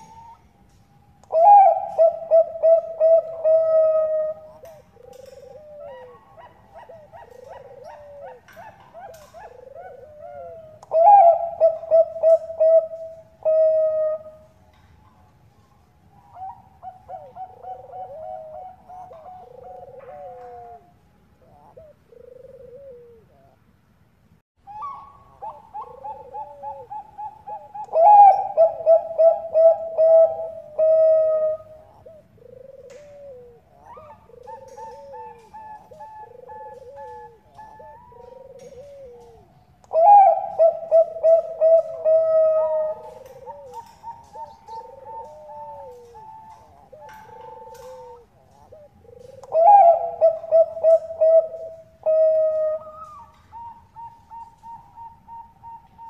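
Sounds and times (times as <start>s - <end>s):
dove rattling coos: 1.3s - 14.4s, 16.4s - 20.9s, 25.4s - 55.9s.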